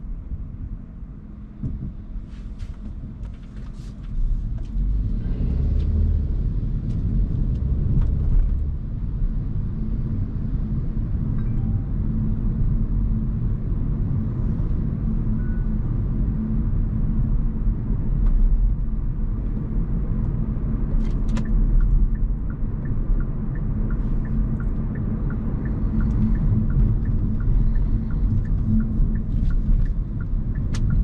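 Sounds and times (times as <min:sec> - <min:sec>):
road and tyre rumble: 0:00.0 - 0:31.0
turn signal ticking: 0:20.2 - 0:31.0.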